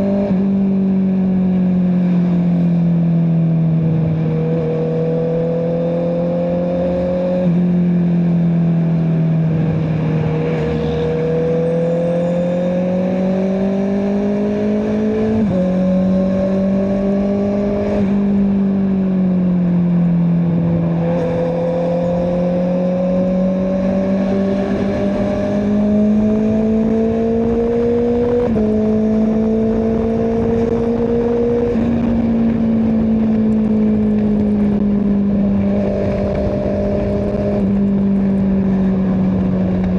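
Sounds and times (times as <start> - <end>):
motorcycle engine running: 15.1 - 39.9.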